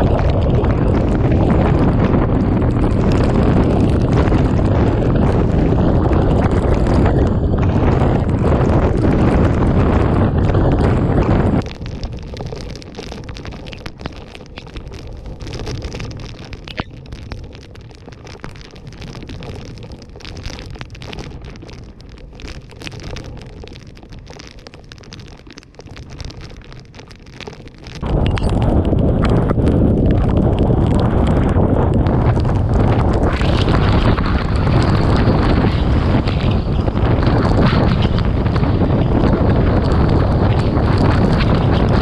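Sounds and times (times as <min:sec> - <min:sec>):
wind buffeting microphone: 0:00.0 - 0:12.4, 0:28.0 - 0:42.0
gusting wind: 0:00.0 - 0:24.3, 0:27.8 - 0:42.0
heavy rain with sharp ticks: 0:00.0 - 0:42.0.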